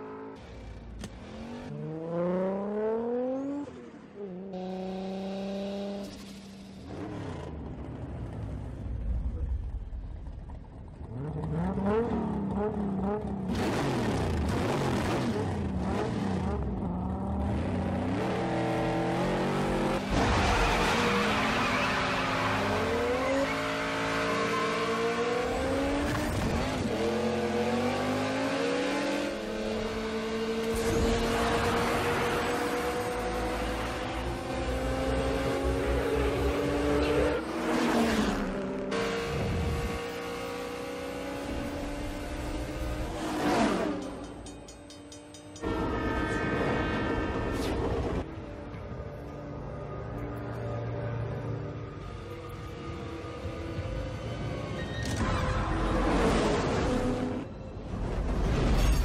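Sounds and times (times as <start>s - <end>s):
car engines revving hard: 0.0s - 3.8s, 11.0s - 44.5s.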